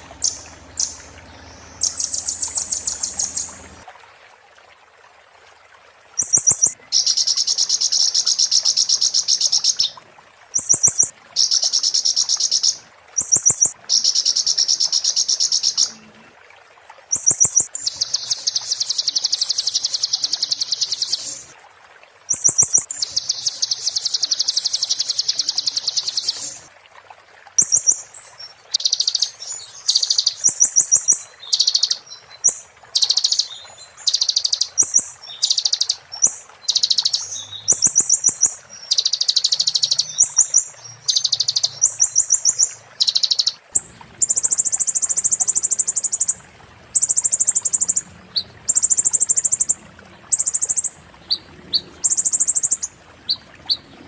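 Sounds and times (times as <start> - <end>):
bird song with rapid high trills: 0.0 - 3.8, 6.2 - 9.9, 27.6 - 46.3.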